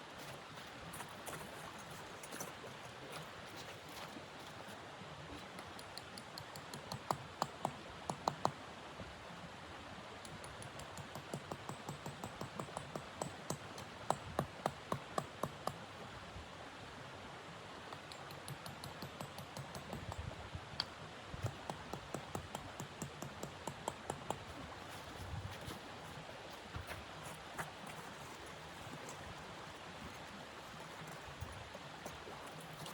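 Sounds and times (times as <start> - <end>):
footsteps crunching in snow: 0.0 - 4.8, 24.6 - 32.9.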